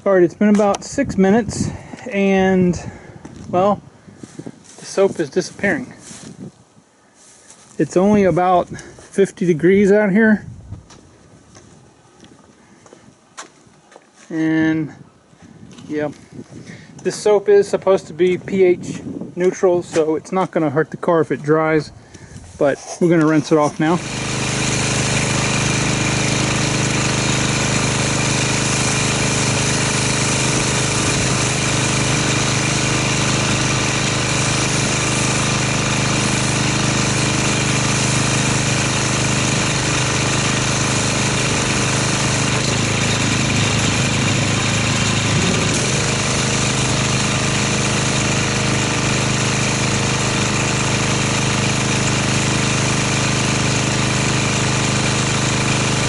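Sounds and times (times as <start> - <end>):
pressure washer pump buzzing: 0.0 - 6.4, 23.3 - 56.0
water spray hissing: 23.5 - 51.0.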